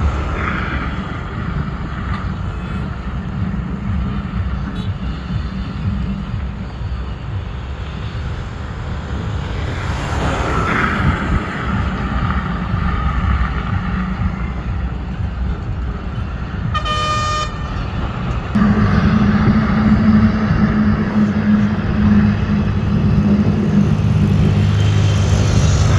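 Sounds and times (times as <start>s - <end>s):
excavator diesel engine running: 0.0s - 25.9s
short horn toot: 16.8s - 17.8s.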